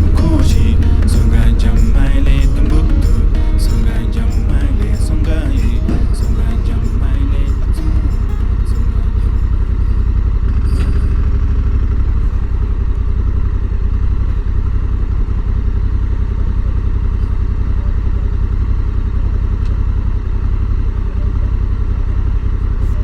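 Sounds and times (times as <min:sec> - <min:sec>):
motorcycle engine rumbling: 0:00.0 - 0:23.0.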